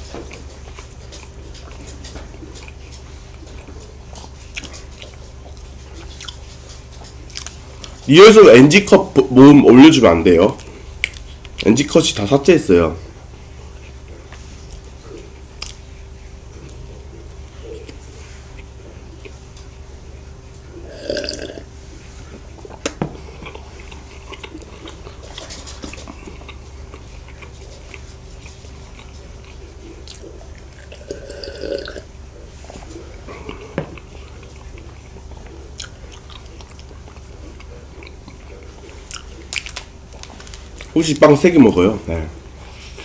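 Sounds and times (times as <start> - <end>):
chewing bread: 0.0 - 8.8, 10.5 - 12.1, 13.2 - 41.5
faint steady hum: 0.0 - 43.0.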